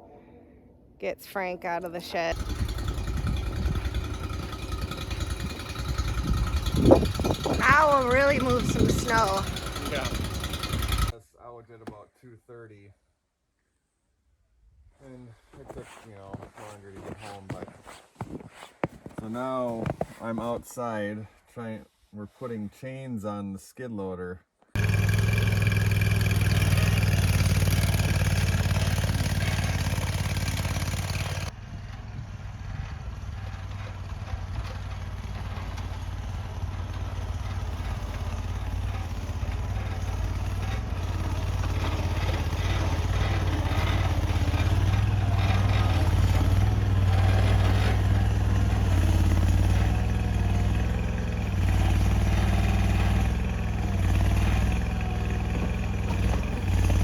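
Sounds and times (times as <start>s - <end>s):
skid loader engine humming: 2.3s - 11.1s, 24.8s - 57.0s.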